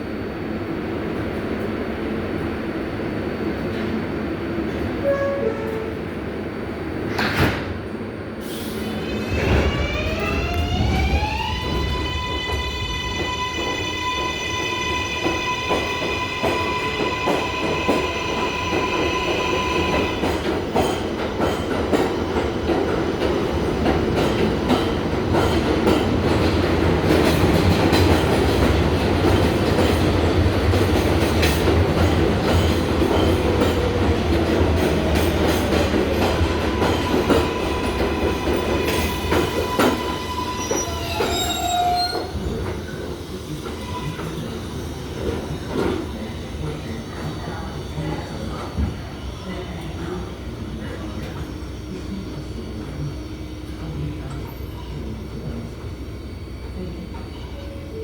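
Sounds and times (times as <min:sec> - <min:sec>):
train wheels rumbling on rails: 0:00.6 - 0:57.8
rail-joint clacks: 0:15.2 - 0:42.9
wheel squeals: 0:39.6 - 0:42.5.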